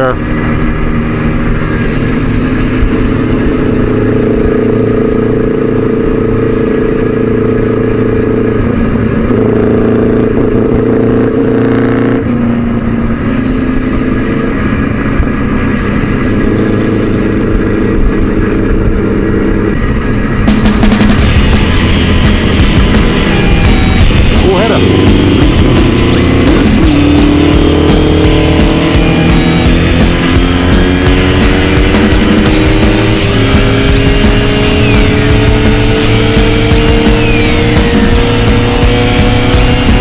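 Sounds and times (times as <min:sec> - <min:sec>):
motorcycle engines cruising: 0:00.0 - 0:40.0.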